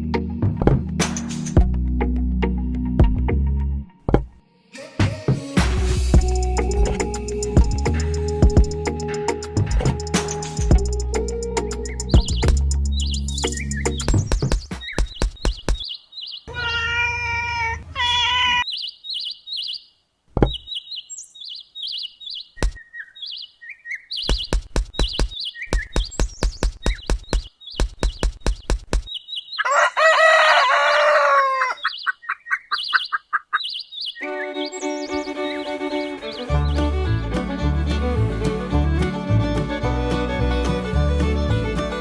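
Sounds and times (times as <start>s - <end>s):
music: 0.0s - 14.4s, 34.2s - 42.0s
small birds chirping: 6.2s - 38.6s
quick sharp clicks: 24.2s - 29.2s
rooster crowing: 29.6s - 31.9s.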